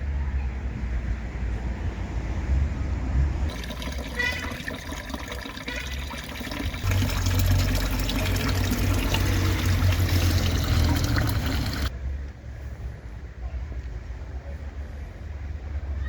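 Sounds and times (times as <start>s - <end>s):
rushing water: 3.5s - 11.9s.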